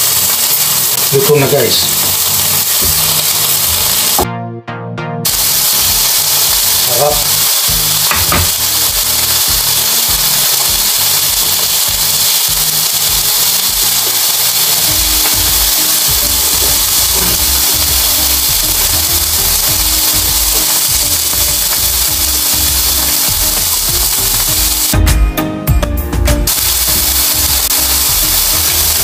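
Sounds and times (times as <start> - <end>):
steady loud hiss: 0.0 - 4.2, 5.3 - 25.0, 26.5 - 29.0.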